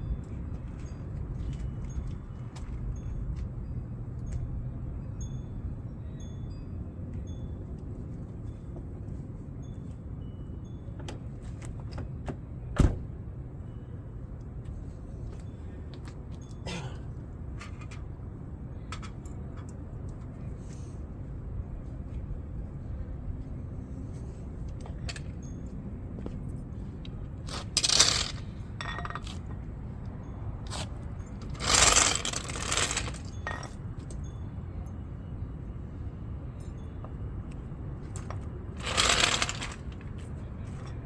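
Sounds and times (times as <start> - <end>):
metallic scraping and clinking: 27.4 - 29.7, 30.7 - 34.3, 38.1 - 41.0.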